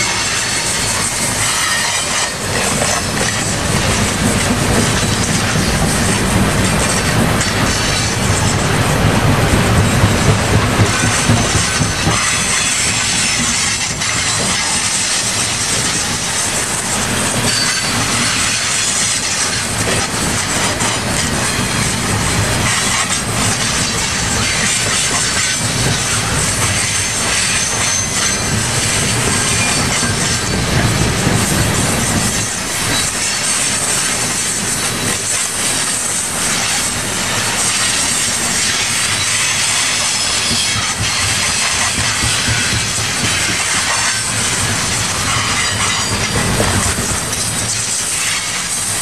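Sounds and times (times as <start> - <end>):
thin high wheel squeals: 0.0 - 4.1, 17.2 - 19.8, 22.6 - 30.9, 32.1 - 48.9
train wheels clattering on rails: 0.0 - 49.0.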